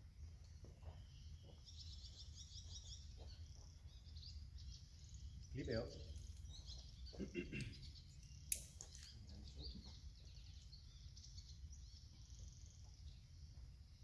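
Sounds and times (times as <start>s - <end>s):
faint birds chirping: 0.0s - 14.0s
outdoor background hum: 0.0s - 14.0s
sharp click: 8.5s - 9.2s.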